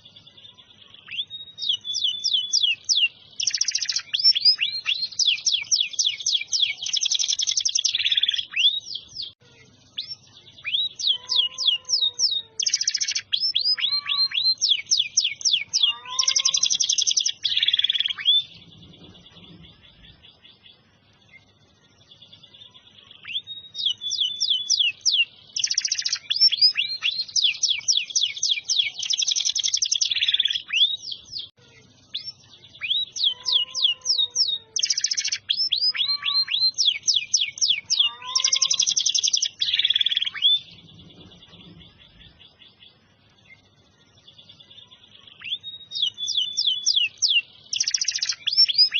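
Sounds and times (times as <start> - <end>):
canary singing trills: 0.0 - 48.9.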